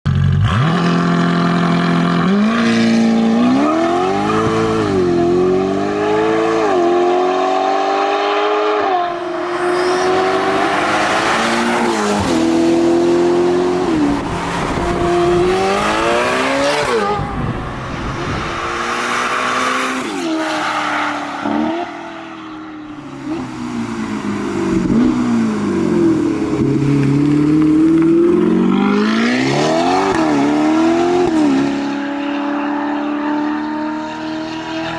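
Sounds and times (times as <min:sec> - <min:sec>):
car engine revving: 0:00.3 - 0:34.9
rushing noise: 0:09.1 - 0:21.7.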